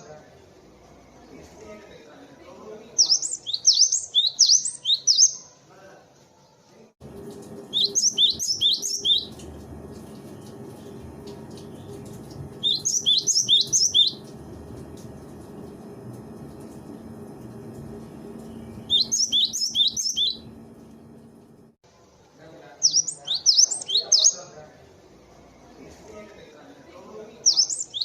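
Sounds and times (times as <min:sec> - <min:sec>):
low background hum: 0:07.0 - 0:21.8
bird singing two-note phrases: 0:07.7 - 0:09.4, 0:12.6 - 0:14.2, 0:18.5 - 0:20.6.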